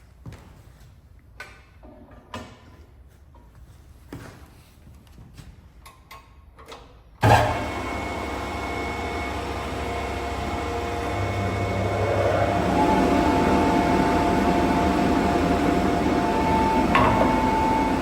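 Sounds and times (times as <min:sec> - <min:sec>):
planer motor humming: 0:07.2 - 0:18.0.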